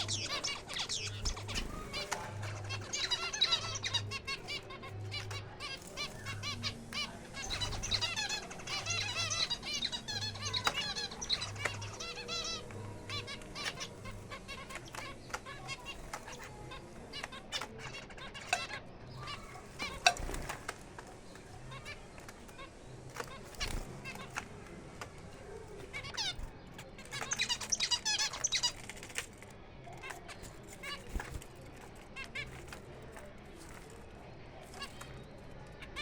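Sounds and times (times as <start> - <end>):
clicks of birds landing: 0.0 - 36.0
finches chirping and twittering: 0.0 - 36.0
fluttering wings: 19.2 - 35.9.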